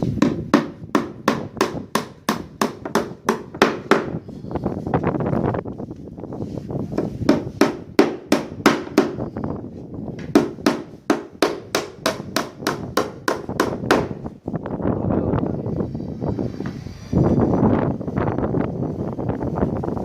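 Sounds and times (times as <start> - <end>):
hammer striking wood: 0.2 - 4.2, 7.0 - 9.2, 10.2 - 14.3.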